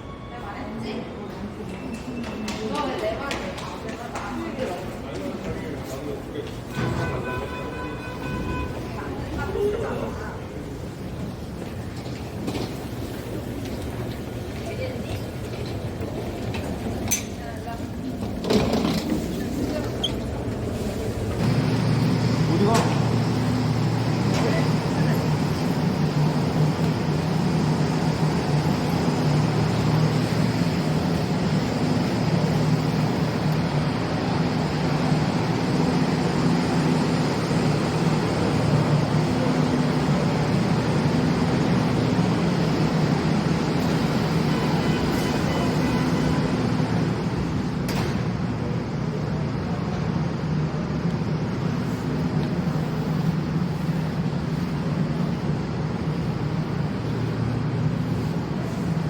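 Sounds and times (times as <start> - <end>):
subway train rumble: 0.0 - 59.0.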